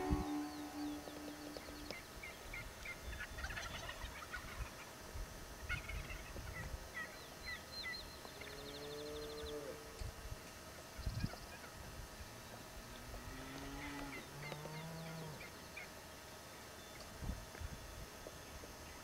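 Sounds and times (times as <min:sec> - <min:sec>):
songbirds chirping and trilling: 0:00.0 - 0:05.0, 0:05.7 - 0:10.1, 0:12.9 - 0:17.2
turkeys gobbling: 0:03.3 - 0:04.9.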